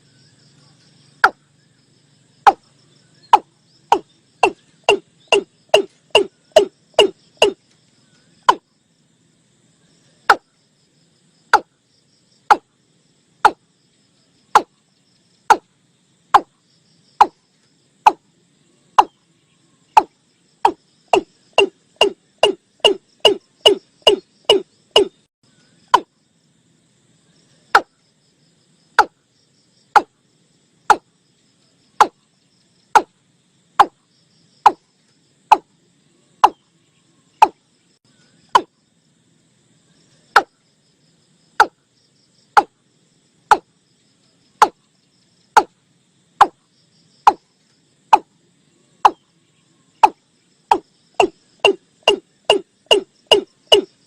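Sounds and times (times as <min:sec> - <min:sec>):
bird calling hollow notes: 0:01.2 - 0:01.4, 0:02.4 - 0:07.6, 0:08.4 - 0:08.7, 0:11.6 - 0:11.8, 0:14.6 - 0:14.8, 0:15.5 - 0:15.7, 0:18.0 - 0:18.2, 0:19.0 - 0:19.2, 0:19.9 - 0:26.1, 0:30.0 - 0:30.2, 0:36.4 - 0:36.7, 0:37.4 - 0:37.6, 0:38.5 - 0:38.7, 0:40.3 - 0:40.5, 0:41.6 - 0:41.8, 0:50.0 - 0:54.0.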